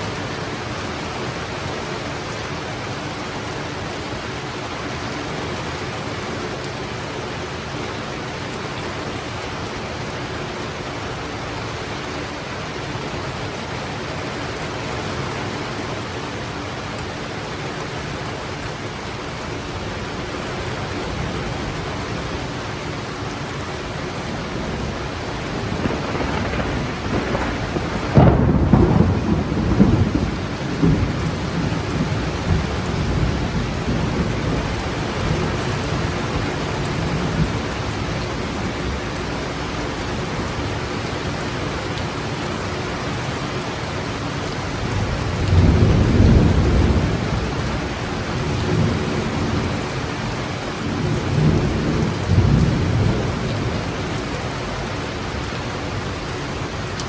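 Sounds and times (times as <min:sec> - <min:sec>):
heavy rain falling: 0:00.0 - 0:57.0
thunder rumbling: 0:24.2 - 0:39.0, 0:45.0 - 0:49.8, 0:50.8 - 0:54.0.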